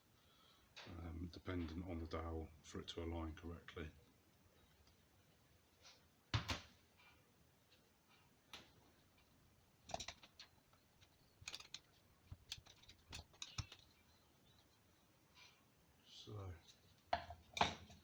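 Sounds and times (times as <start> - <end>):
small metal parts clicking and knocking: 9.8 - 14.7.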